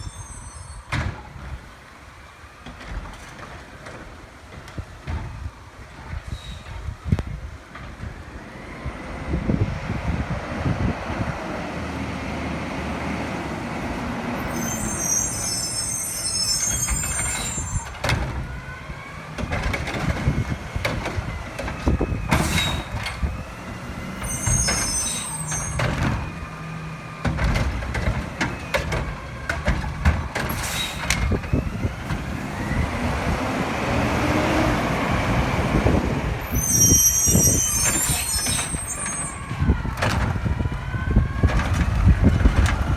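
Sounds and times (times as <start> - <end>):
diesel engine revving: 8.3 - 15.6, 16.9 - 38.8
air brake hiss: 30.5 - 31.2.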